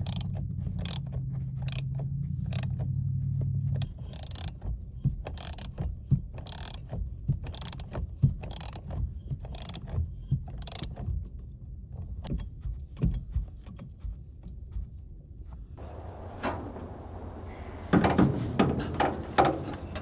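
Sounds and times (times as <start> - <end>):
ratchet wrench clicking: 0.0 - 1.0, 1.6 - 1.9, 2.5 - 2.7, 3.8 - 4.5, 5.4 - 5.8, 6.4 - 6.8, 7.5 - 8.8, 9.5 - 9.9, 10.6 - 10.9
tools tapping on metal: 0.0 - 1.0, 3.8 - 4.5, 5.4 - 5.7, 6.5 - 6.8, 7.5 - 7.8, 8.5 - 8.8, 9.6 - 9.8, 10.6 - 10.9, 15.8 - 20.0.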